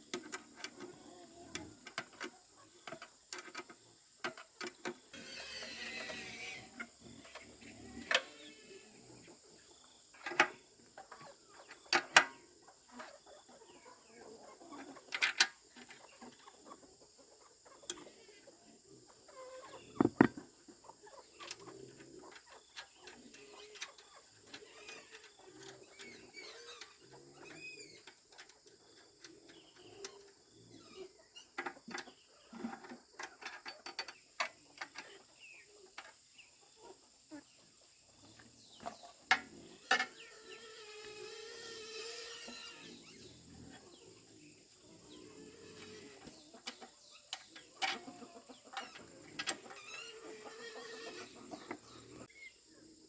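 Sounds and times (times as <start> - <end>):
chickens clucking: 0.0 - 41.2, 42.1 - 53.0
sharp knocks: 20.0 - 20.4.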